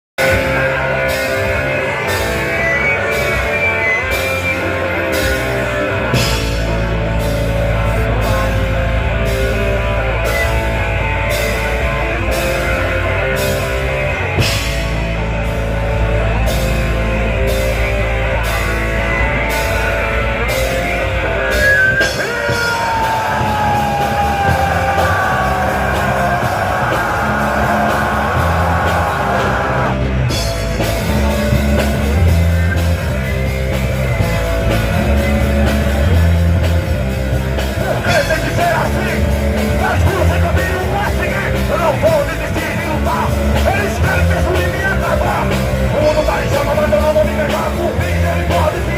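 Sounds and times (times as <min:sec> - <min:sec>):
electric guitar: 0:00.2 - 0:48.9
rock band playing live: 0:00.2 - 0:48.9
steady drum beat: 0:00.2 - 0:48.9.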